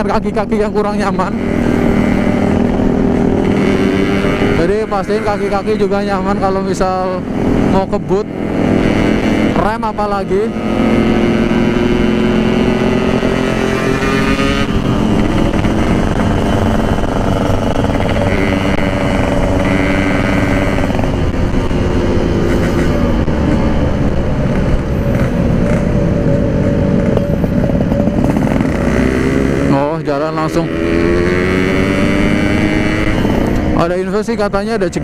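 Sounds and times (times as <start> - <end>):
two-stroke motorcycle engine running: 0.0 - 35.0.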